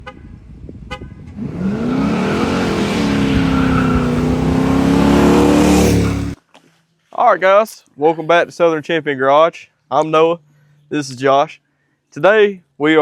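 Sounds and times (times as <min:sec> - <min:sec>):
engine revving: 0:01.3 - 0:06.4.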